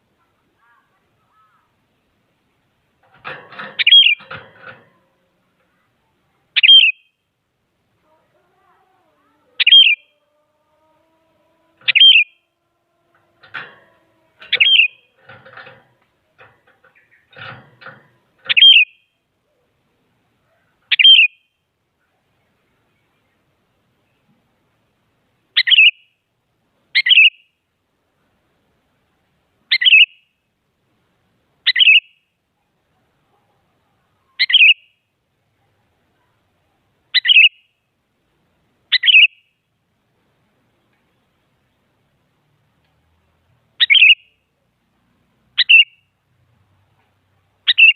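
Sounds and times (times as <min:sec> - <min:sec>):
bird calling: 0:03.2 - 0:05.2, 0:06.5 - 0:07.1, 0:09.2 - 0:15.8, 0:16.4 - 0:19.0, 0:20.5 - 0:21.4, 0:34.3 - 0:34.8, 0:37.1 - 0:37.6, 0:38.9 - 0:39.4, 0:43.8 - 0:44.3, 0:45.6 - 0:46.0, 0:47.7 - 0:47.9
bird whistling calls: 0:06.6 - 0:07.1, 0:09.6 - 0:10.0, 0:11.9 - 0:12.4, 0:14.5 - 0:15.0, 0:18.5 - 0:18.9, 0:38.9 - 0:39.4, 0:43.8 - 0:44.2, 0:45.6 - 0:45.9, 0:47.7 - 0:47.9.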